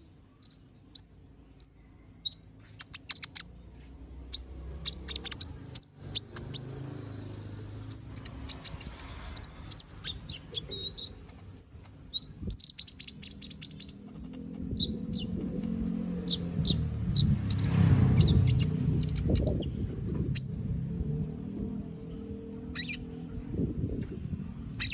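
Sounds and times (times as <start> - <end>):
small bird chirping and trilling: 0.0 - 24.9
low rumble: 14.5 - 24.9.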